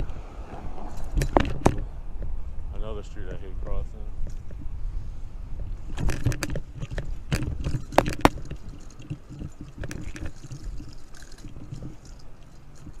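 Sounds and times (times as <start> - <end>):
bicycle road rumble: 0.0 - 13.0
wind on microphone: 0.0 - 13.0
sharp rattling knocks: 5.9 - 13.0.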